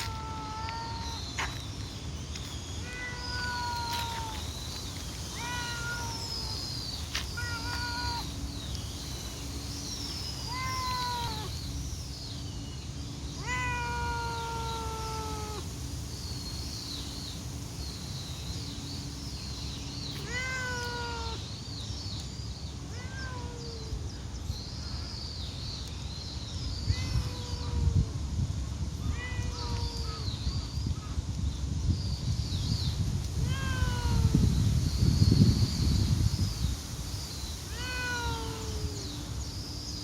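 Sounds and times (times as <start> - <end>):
cat meowing: 0.0 - 1.2, 2.8 - 4.4, 5.3 - 6.6, 7.4 - 8.3, 10.5 - 11.5, 13.4 - 15.6, 20.2 - 21.4, 22.9 - 23.9, 33.4 - 34.4, 37.7 - 39.1.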